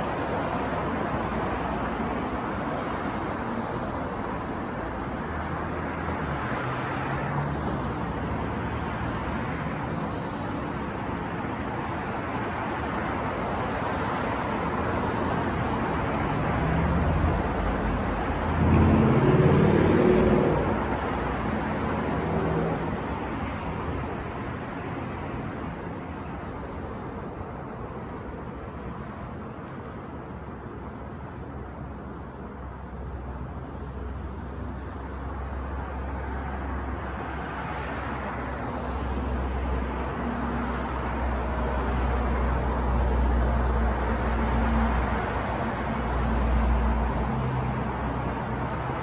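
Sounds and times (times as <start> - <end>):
street traffic noise: 0.0 - 49.0
heavy vehicle engine passing: 16.0 - 24.1.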